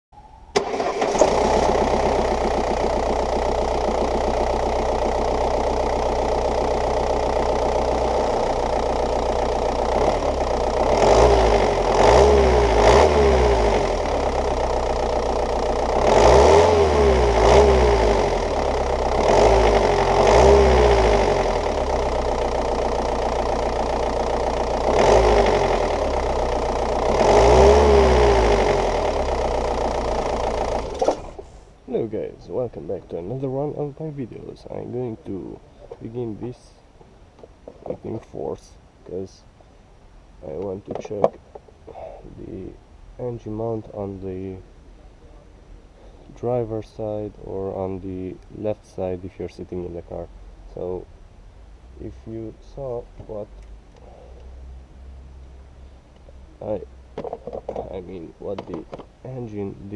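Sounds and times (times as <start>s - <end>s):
diesel engine idling and revving: 0.6s - 36.4s.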